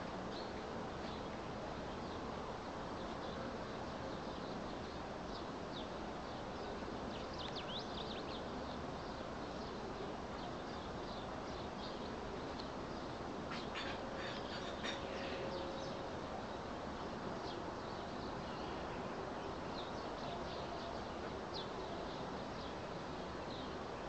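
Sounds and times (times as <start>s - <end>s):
steady background noise: 0.0s - 24.0s
small birds chirping: 0.3s - 23.9s.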